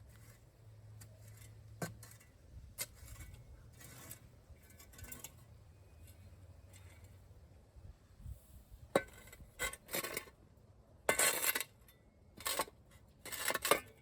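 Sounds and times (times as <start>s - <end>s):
light scraping: 0.0s - 7.2s.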